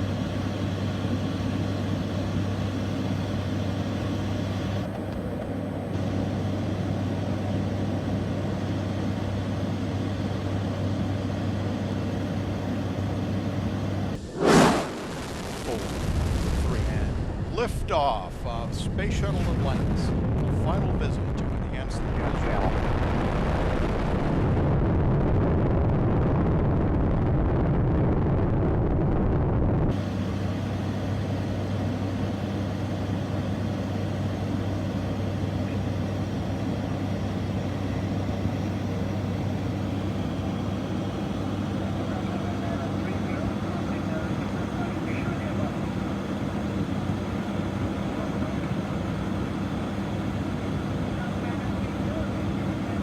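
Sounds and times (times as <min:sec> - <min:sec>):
jet aircraft engine: 0:00.0 - 0:53.0.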